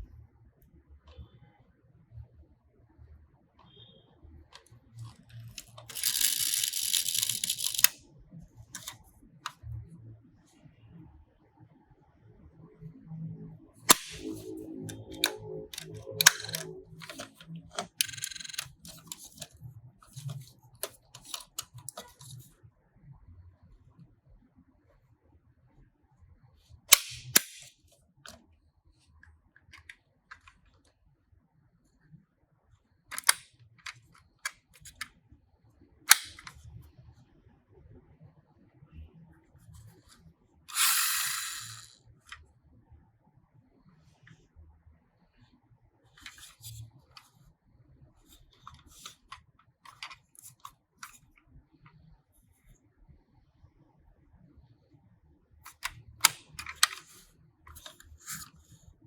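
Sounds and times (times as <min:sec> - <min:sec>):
small handling clicks: 0:04.6 - 0:08.0, 0:08.7 - 0:09.6, 0:13.9 - 0:22.4, 0:26.9 - 0:28.4, 0:33.1 - 0:35.1, 0:36.1 - 0:36.6, 0:40.7 - 0:42.0, 0:48.6 - 0:51.2, 0:55.6 - 0:58.6
toy car clacks: 0:05.3 - 0:08.0, 0:08.8 - 0:09.0, 0:13.9 - 0:19.5, 0:33.1 - 0:33.4, 0:40.7 - 0:42.0.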